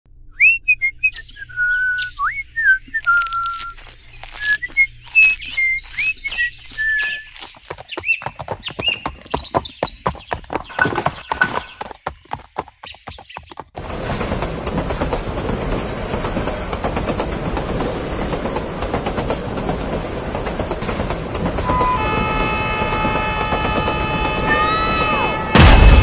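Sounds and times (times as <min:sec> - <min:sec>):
bird whistling notes: 0:00.4 - 0:08.2
bird clicks and chirps: 0:03.0 - 0:08.2.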